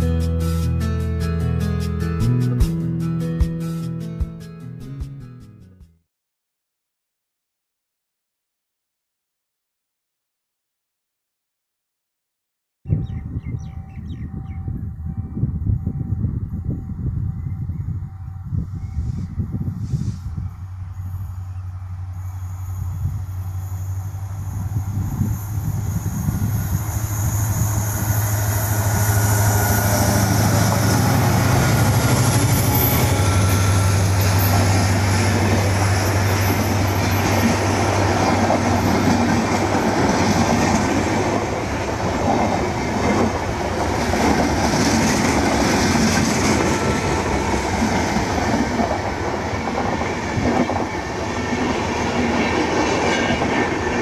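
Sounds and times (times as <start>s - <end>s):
locomotive engine drone: 17.9s - 54.0s
wheel squeal: 21.0s - 38.9s.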